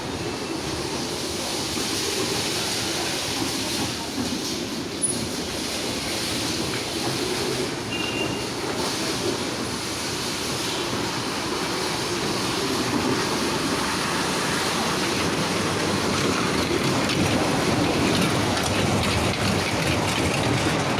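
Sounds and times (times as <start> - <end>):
train wheels rumbling on rails: 0.0 - 20.9.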